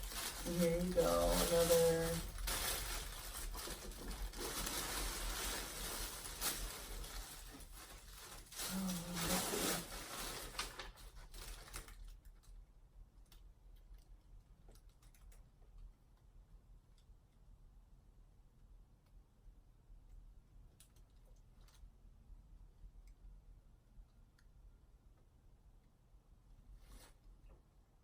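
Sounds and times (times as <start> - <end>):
paper packaging rustling: 0.0 - 12.5.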